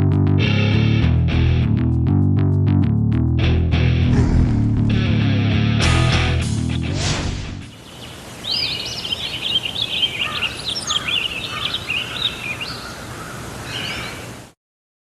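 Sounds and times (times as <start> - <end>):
small bird singing high chirps: 7.7 - 13.0.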